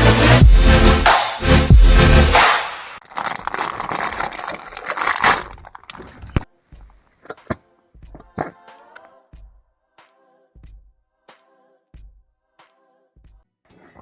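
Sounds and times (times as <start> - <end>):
dense crackling and crunching: 3.0 - 6.5.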